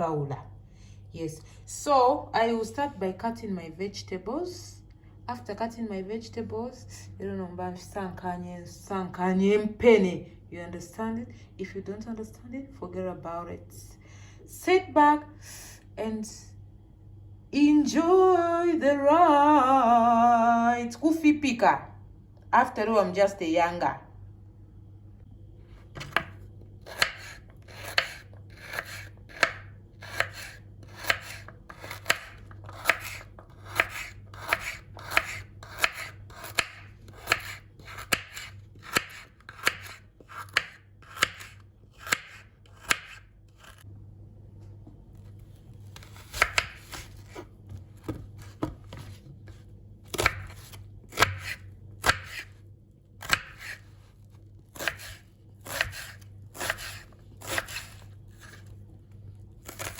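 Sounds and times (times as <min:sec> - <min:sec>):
knife chopping on cutting board: 0:26.0 - 0:43.8, 0:46.0 - 0:52.5, 0:53.2 - 0:53.8, 0:54.8 - 0:58.7.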